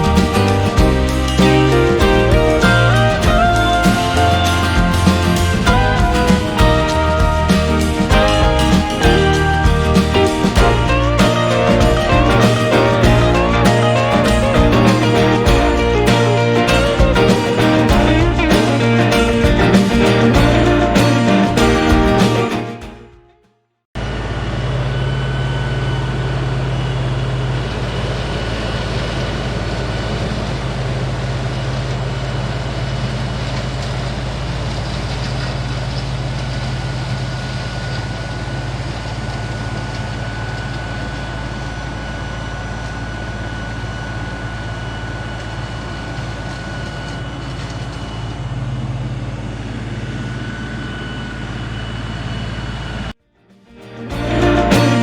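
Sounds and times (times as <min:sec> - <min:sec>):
tractor diesel engine running: 0:00.0 - 0:22.5
faint high whine: 0:37.6 - 0:53.2.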